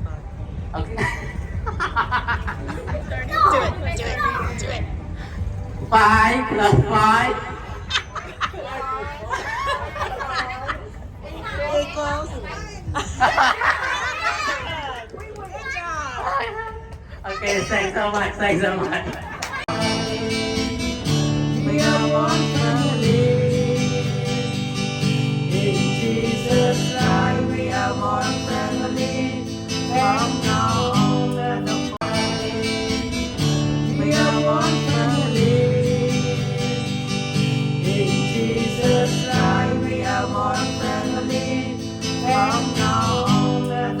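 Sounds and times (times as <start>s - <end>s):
strummed acoustic guitar: 19.7s - 44.0s.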